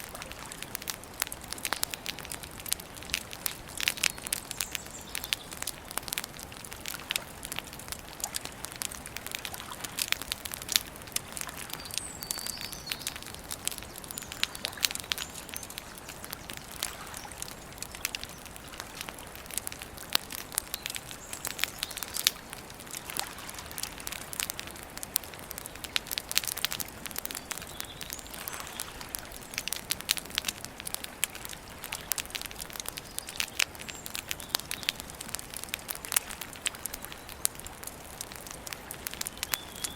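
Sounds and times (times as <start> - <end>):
campfire crackling and popping: 0.0 - 39.9
bird chirping: 11.7 - 18.6.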